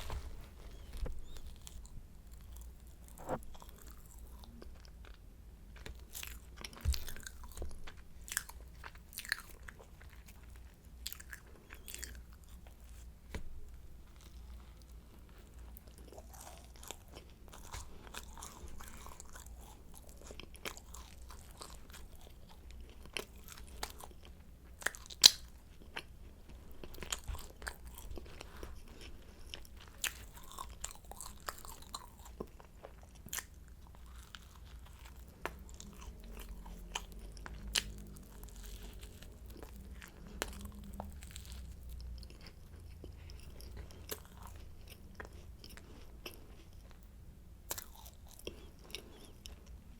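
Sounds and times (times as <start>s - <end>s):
chewing crisp pastry: 0.0s - 49.9s.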